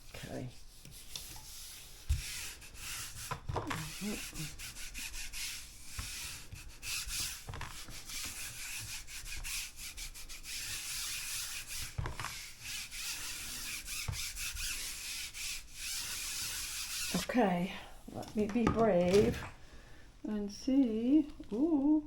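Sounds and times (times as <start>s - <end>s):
paper rubbing on printing plate: 0.2s - 17.4s.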